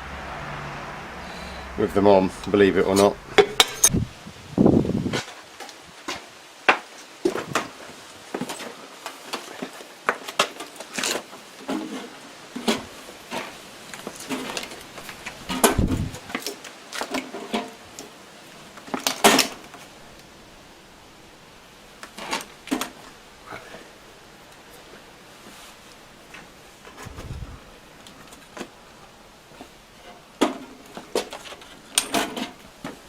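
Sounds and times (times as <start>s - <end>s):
metal parts and tools clinking: 3.4s - 4.0s.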